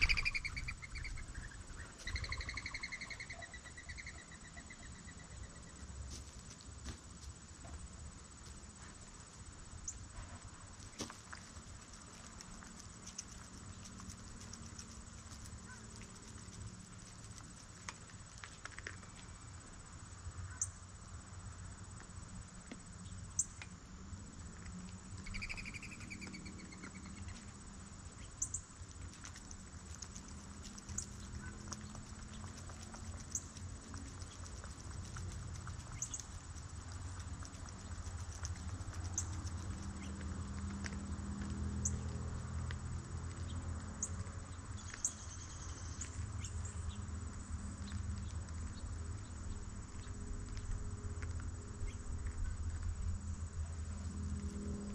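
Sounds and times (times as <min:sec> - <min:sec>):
songbird trilling: 0:00.0 - 0:05.8, 0:25.2 - 0:27.3.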